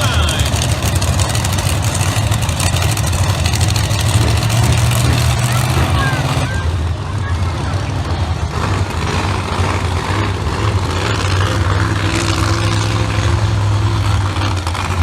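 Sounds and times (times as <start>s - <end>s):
truck engines idling: 0.0s - 15.0s.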